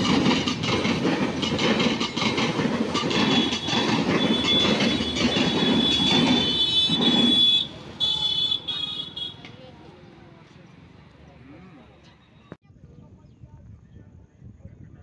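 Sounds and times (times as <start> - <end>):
train wheels rumbling on rails: 0.0 - 11.3.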